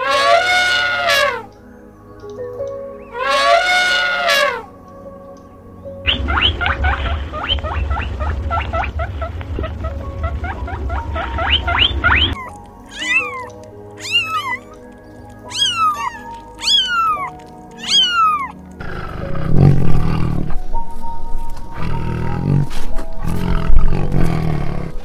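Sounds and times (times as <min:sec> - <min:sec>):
background music: 0:00.0 - 0:25.0
rising chirps: 0:05.7 - 0:19.4
low rumble: 0:05.8 - 0:12.9, 0:18.8 - 0:25.0
tiger growling: 0:06.0 - 0:25.0
kitten mewing: 0:12.3 - 0:14.8, 0:15.5 - 0:18.6.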